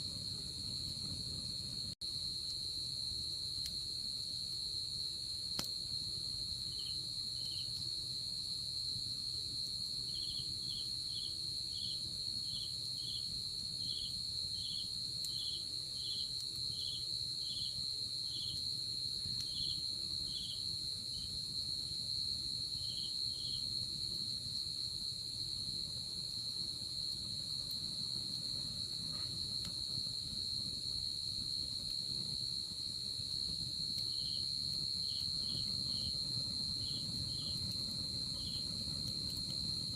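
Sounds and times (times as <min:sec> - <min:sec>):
insect high-pitched trill: 0:33.8 - 0:39.9.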